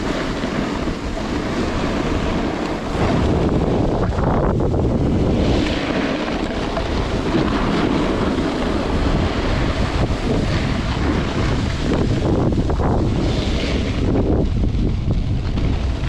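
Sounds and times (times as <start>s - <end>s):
snowboard hissing over snow: 0.0s - 16.0s
wind buffeting microphone: 0.0s - 16.0s.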